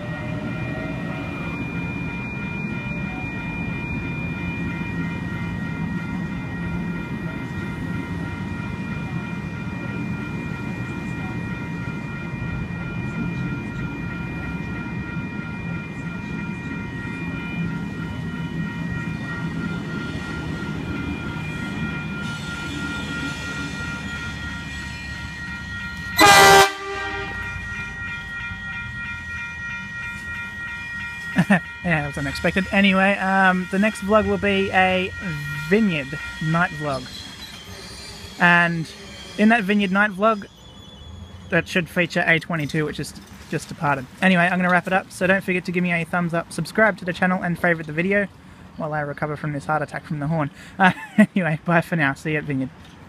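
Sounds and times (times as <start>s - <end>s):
train rumbling: 0.0s - 53.0s
train horn blast: 26.2s - 27.6s.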